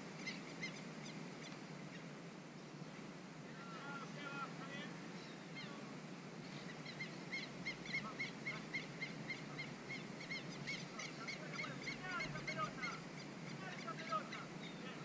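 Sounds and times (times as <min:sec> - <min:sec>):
bird chirping repeatedly: 0:00.1 - 0:02.8, 0:06.5 - 0:15.0
lower bird chirps: 0:00.1 - 0:02.8, 0:05.1 - 0:15.0.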